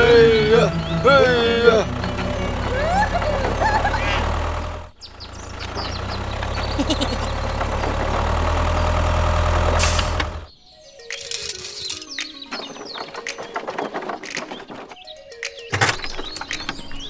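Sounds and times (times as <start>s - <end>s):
tractor engine idling: 0.0s - 10.5s
birds chirping: 0.0s - 17.0s.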